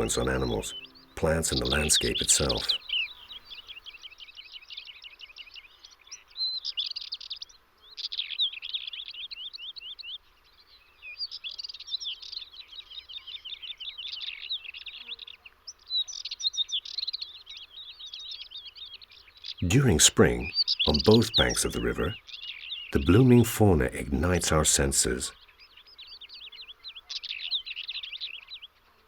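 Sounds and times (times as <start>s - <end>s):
songbirds twittering: 0.0s - 28.7s.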